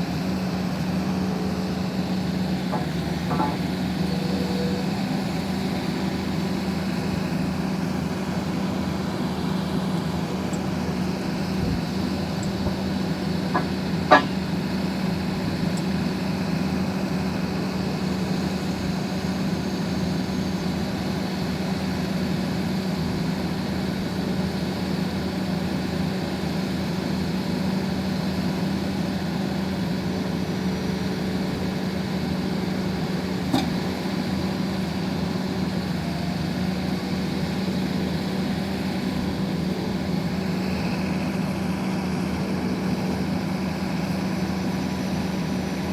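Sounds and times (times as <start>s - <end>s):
drilling rig engine humming: 0.0s - 45.9s
sharp metal clank: 13.6s - 14.5s.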